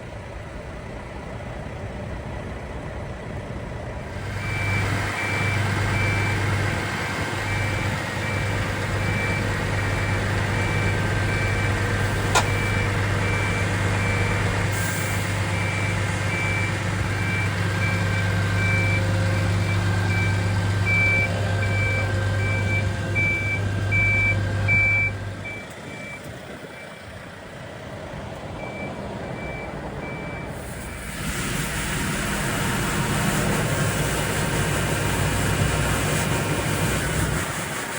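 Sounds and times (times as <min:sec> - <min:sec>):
truck engine running: 0:00.0 - 0:37.9
high beeping warning alarm: 0:15.6 - 0:26.2.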